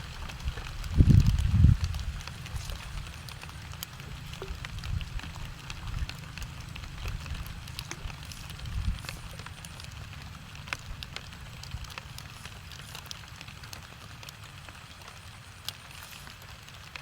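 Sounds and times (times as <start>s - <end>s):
steady low rumble: 0.0s - 12.7s
rain falling: 0.0s - 17.0s
sharp taps of raindrops: 0.0s - 17.0s.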